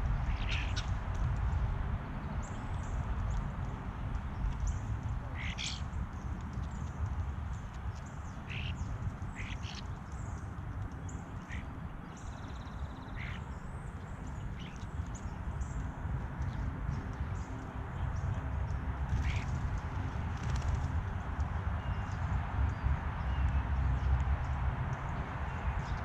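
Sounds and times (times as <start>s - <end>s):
steady low rumble: 0.0s - 26.0s
birds calling: 0.2s - 0.9s, 5.4s - 6.2s, 8.0s - 10.4s, 11.0s - 15.9s, 19.1s - 19.5s.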